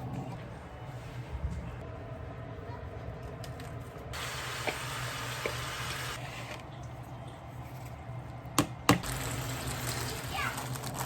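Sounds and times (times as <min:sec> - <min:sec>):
tap water running: 0:04.2 - 0:06.2, 0:09.0 - 0:11.0.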